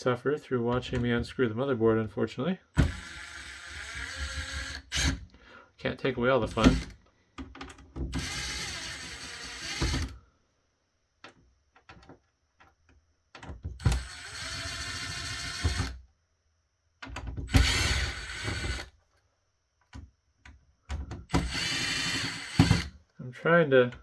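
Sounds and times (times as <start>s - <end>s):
electric screwdriver running: 2.8s - 5.2s, 8.2s - 10.1s, 13.8s - 15.9s, 17.5s - 18.9s, 21.4s - 22.9s.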